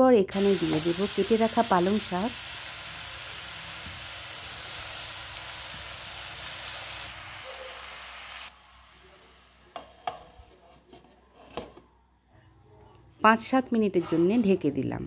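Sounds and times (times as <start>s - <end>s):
vegetables sizzling in oil: 0.3s - 10.1s.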